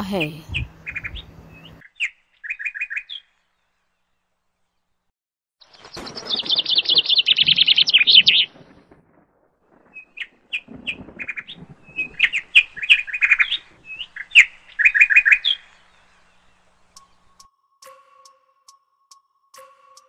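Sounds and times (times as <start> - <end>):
birds chirping rapidly: 0.0 - 4.2, 5.6 - 9.0, 9.7 - 17.4.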